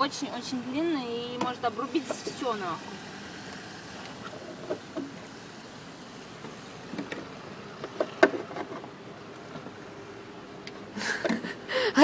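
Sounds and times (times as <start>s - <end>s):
steady background noise: 0.0s - 12.0s
knocks and clicks of car part: 7.8s - 8.8s.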